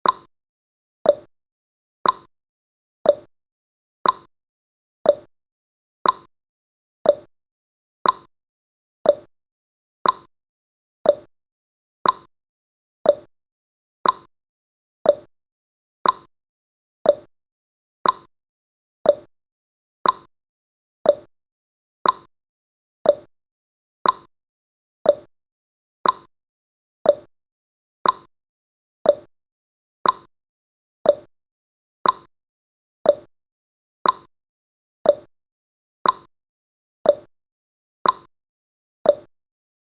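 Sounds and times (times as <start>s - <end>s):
clock-like timer ticking: 0.0s - 0.3s, 1.1s - 1.3s, 2.0s - 2.3s, 3.1s - 3.3s, 4.0s - 4.3s, 5.1s - 5.3s, 6.0s - 6.3s, 7.1s - 7.3s, 8.0s - 8.3s, 9.1s - 9.3s, 10.0s - 10.3s, 11.1s - 11.3s, 12.0s - 12.3s, 13.1s - 13.3s, 14.0s - 14.3s, 15.1s - 15.3s, 16.0s - 16.3s, 17.0s - 17.3s, 18.0s - 18.3s, 19.0s - 19.3s, 20.0s - 20.3s, 21.0s - 21.3s, 22.0s - 22.3s, 23.0s - 23.3s, 24.0s - 24.3s, 25.0s - 25.3s, 26.0s - 26.3s, 27.0s - 27.3s, 28.0s - 28.3s, 29.0s - 29.3s, 30.0s - 30.3s, 31.0s - 31.3s, 32.0s - 32.3s, 33.0s - 33.3s, 34.0s - 34.3s, 35.0s - 35.3s, 36.0s - 36.3s, 37.1s - 37.3s, 38.0s - 38.3s, 39.1s - 39.3s.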